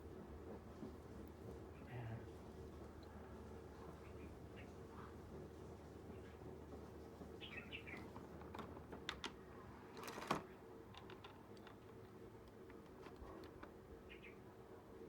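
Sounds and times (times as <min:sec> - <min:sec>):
faint clicks and taps: 0:10.1 - 0:13.8.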